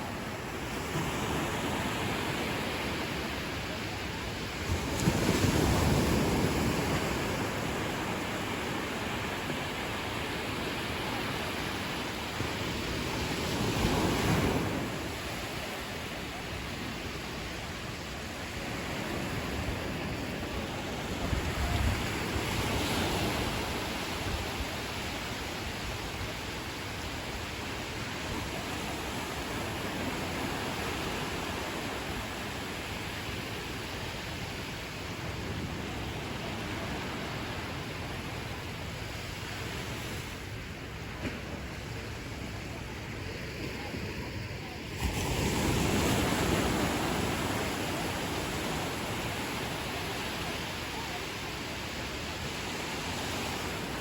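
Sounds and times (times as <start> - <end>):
ocean waves breaking: 0.0 - 54.0
surf hiss: 0.0 - 54.0.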